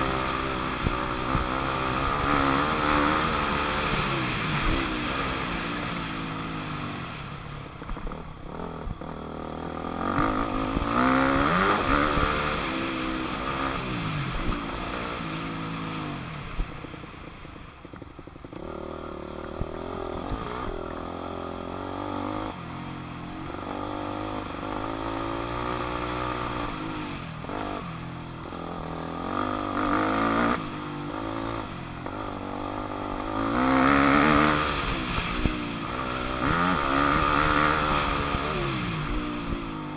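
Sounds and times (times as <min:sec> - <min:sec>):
dirt bike engine revving: 0:00.0 - 0:07.2, 0:07.9 - 0:16.6, 0:23.4 - 0:39.9.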